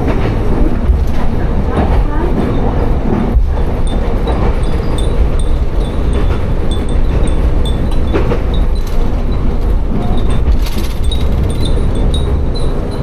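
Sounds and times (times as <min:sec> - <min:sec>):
railcar rumbling: 0:00.0 - 0:13.0
glass wind chimes tinkling: 0:04.3 - 0:08.7, 0:11.0 - 0:13.0.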